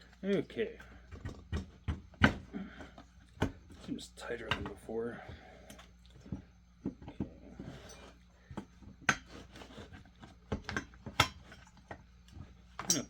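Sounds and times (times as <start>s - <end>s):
metal tools clicking and clinking: 12.8s - 13.0s.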